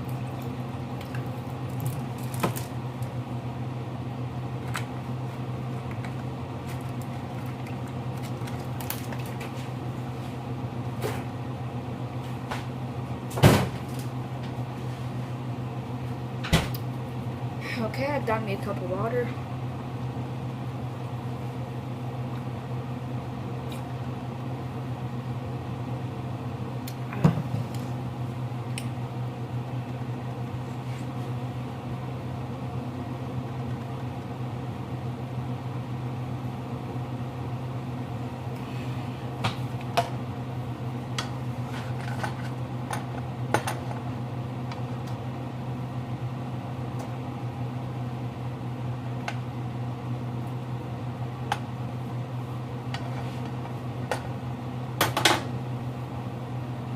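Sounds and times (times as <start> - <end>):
kitchen appliance humming: 0.0 - 56.9.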